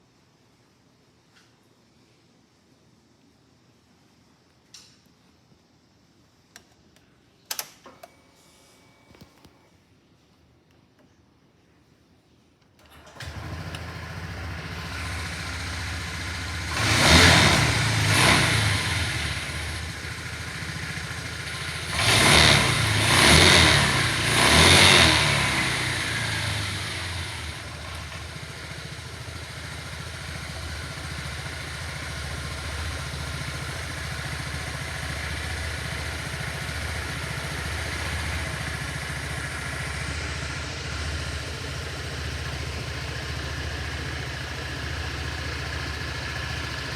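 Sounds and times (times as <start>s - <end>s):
scooter engine idling and revving: 13.0s - 46.9s.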